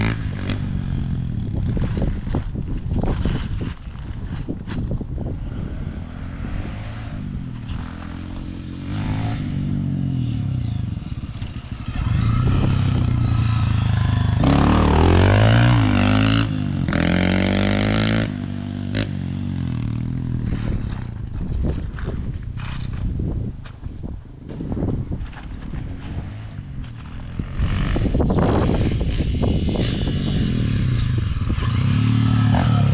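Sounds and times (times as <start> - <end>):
dirt bike engine revving: 0.0 - 2.2, 6.2 - 21.2, 26.1 - 32.9.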